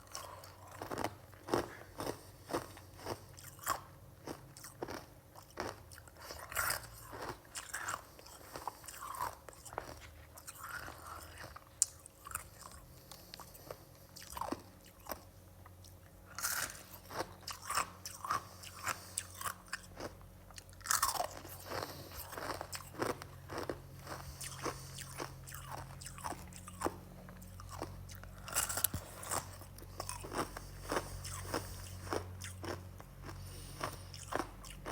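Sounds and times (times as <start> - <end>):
person crunching ice: 0.1 - 3.7, 20.8 - 27.0, 27.6 - 34.9.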